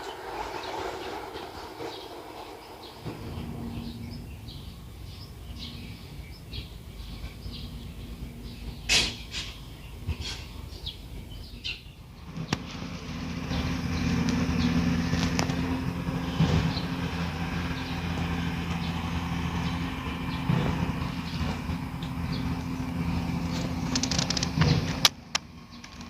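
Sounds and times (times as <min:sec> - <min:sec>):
bird chirps: 0:00.0 - 0:12.7
engine humming: 0:00.0 - 0:26.0.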